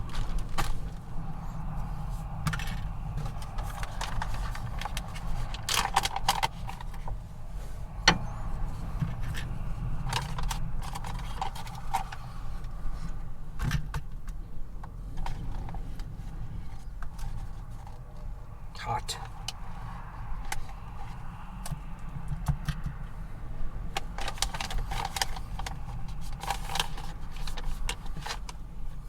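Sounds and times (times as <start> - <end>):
strong wind buffeting truck: 0.0 - 29.0
small items clinking and rattling: 24.0 - 28.5.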